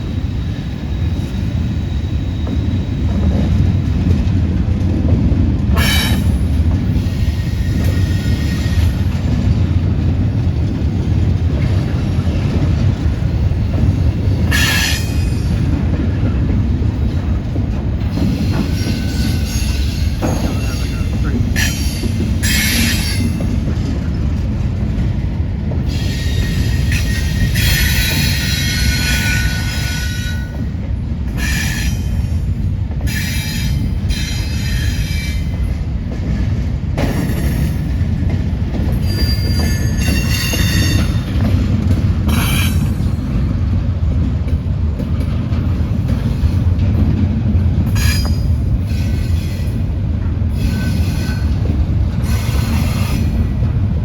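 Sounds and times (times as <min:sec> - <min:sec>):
train wheels rumbling on rails: 0:00.0 - 0:54.0
high-pitched wheel squeals: 0:39.0 - 0:41.2.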